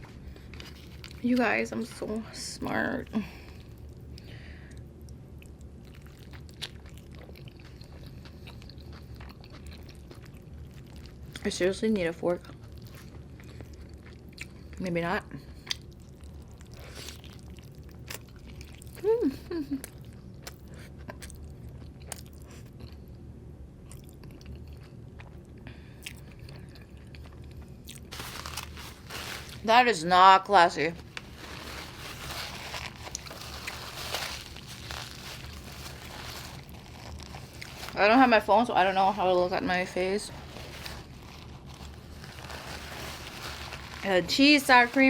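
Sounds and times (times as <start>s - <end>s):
chewing food with wet mouth clicks: 3.6s - 11.5s, 12.4s - 14.8s, 15.6s - 19.0s, 19.9s - 23.2s, 23.8s - 28.1s
soft crunches and wet clicks: 31.0s - 38.5s.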